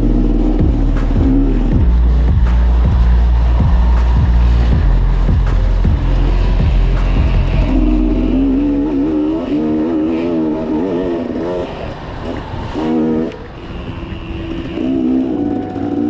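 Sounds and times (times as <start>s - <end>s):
deep bass music: 0.0s - 11.6s, 14.7s - 16.0s
motorcycle engine revving: 0.0s - 16.0s.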